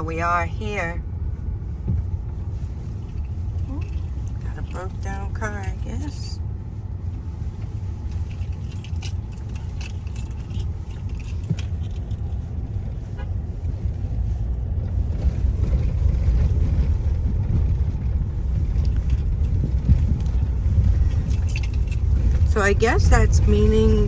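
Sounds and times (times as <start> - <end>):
road and engine rumble in car: 0.0 - 24.0
light clinking rattles: 2.4 - 6.4, 7.8 - 13.0, 18.5 - 24.0.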